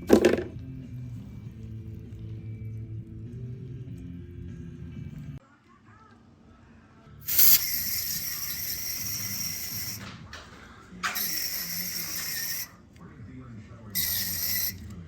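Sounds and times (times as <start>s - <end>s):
pressurised spray hissing from nozzle: 7.2s - 10.0s, 11.1s - 12.7s, 14.0s - 14.8s.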